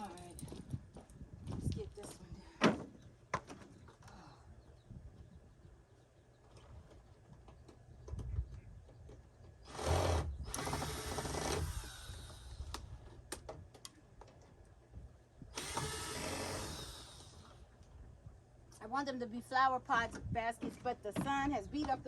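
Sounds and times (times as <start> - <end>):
power drill whirring: 9.7 - 12.9, 15.6 - 17.7.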